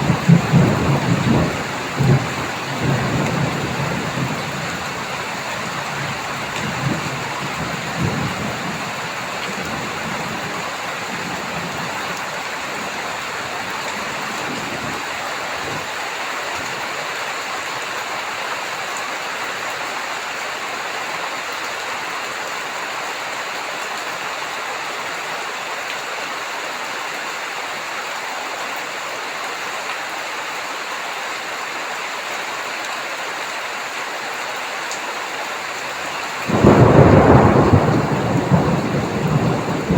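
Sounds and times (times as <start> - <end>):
low thunder rumbling: 0.0 - 15.9, 36.4 - 39.9
heavy rain pouring: 0.0 - 39.9.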